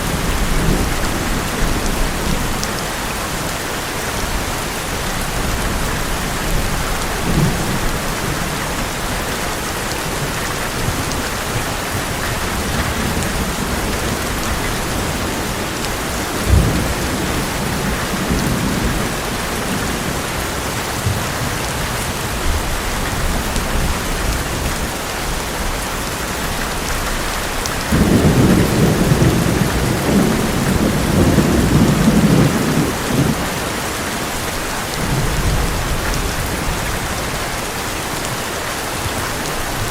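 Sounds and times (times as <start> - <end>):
heavy rain on a metal roof: 0.0 - 39.9
thunder rumbling: 5.2 - 20.3, 27.8 - 33.7
thunder clap: 27.9 - 33.6.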